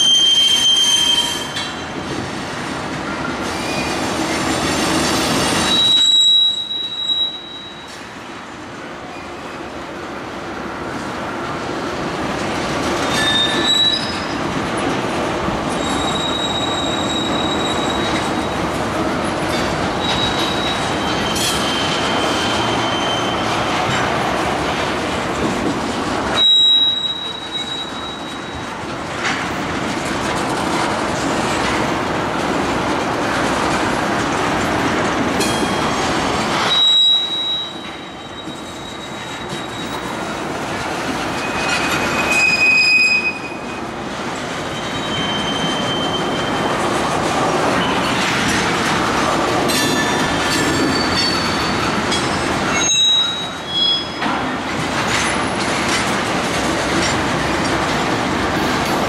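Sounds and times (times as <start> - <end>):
high-pitched wheel squeals: 0.0 - 1.8, 5.5 - 8.0, 13.1 - 14.4, 15.7 - 18.6, 20.0 - 23.6, 26.4 - 28.6, 36.6 - 40.2, 41.3 - 43.8, 44.7 - 46.8, 49.7 - 54.3
freight train wheels rumbling: 0.0 - 59.0.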